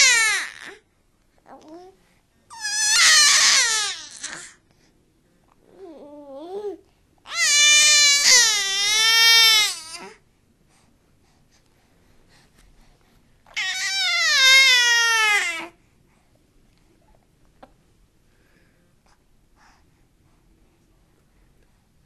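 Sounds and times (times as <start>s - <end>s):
wavering wailing cries: 13.6s - 15.6s.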